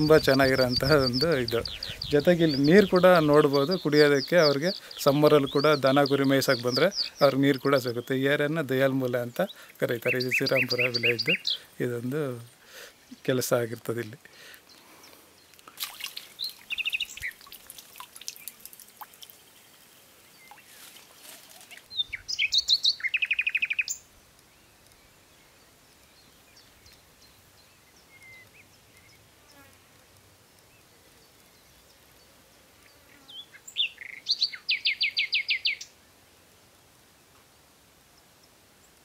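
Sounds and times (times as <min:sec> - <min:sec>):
bird singing: 0:00.0 - 0:17.5, 0:21.6 - 0:29.7, 0:30.4 - 0:36.0.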